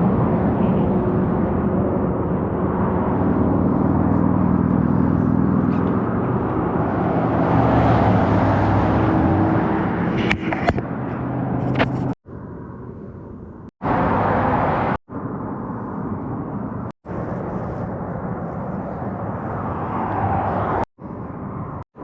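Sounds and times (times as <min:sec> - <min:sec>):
vehicle engine running: 0:00.0 - 0:07.5, 0:08.6 - 0:14.0
road noise: 0:00.0 - 0:22.0.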